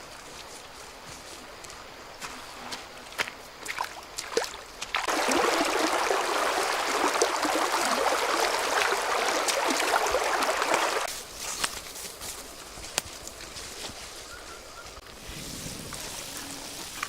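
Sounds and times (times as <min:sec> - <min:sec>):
water running and splashing: 0:03.1 - 0:11.4.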